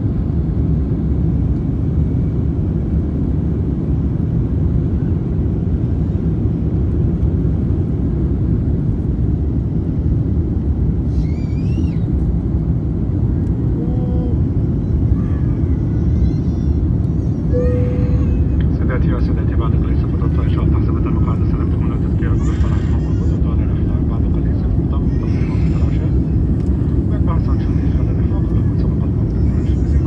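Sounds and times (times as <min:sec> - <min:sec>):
airplane cabin rumble: 0:00.0 - 0:30.0
faint pitched sounds: 0:17.4 - 0:19.7.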